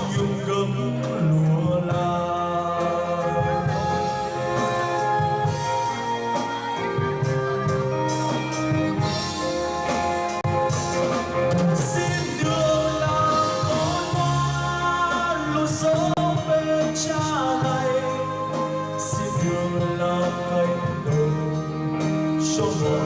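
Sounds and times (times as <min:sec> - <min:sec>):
band music with held notes: 0:00.0 - 0:23.0
drum kit and cymbals: 0:00.0 - 0:23.0.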